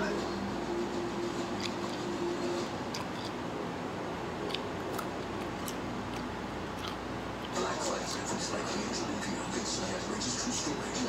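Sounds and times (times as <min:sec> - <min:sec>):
steady background hum: 0:00.0 - 0:11.0
chewing and crunching cucumber: 0:01.5 - 0:03.4, 0:04.3 - 0:07.6.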